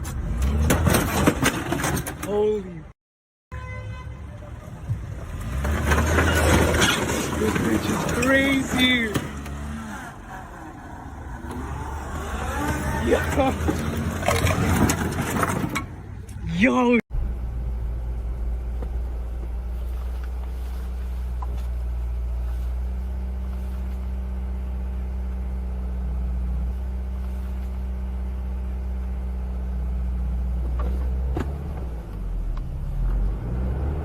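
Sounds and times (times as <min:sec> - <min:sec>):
car engine and road noise: 0:00.0 - 0:34.0.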